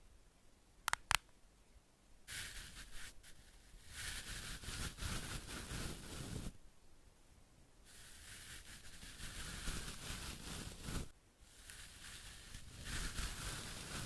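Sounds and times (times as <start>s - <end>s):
hissing scratchy strokes: 2.3s - 6.6s, 7.9s - 14.0s.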